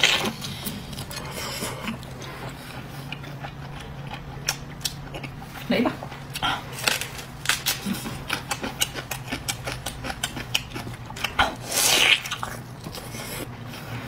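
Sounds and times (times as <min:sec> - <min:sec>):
chewing and mouth sounds: 0:00.0 - 0:14.0
loud bite into food: 0:11.3 - 0:12.6.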